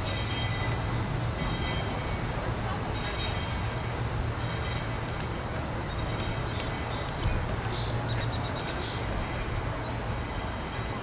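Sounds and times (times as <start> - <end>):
songbird chirping and trilling: 5.9 - 9.0.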